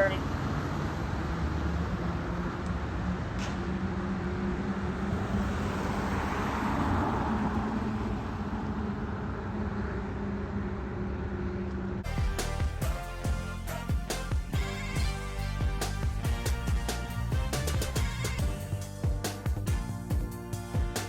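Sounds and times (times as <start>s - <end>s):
fire engine driving by: 0.2s - 19.0s
music: 12.0s - 21.0s.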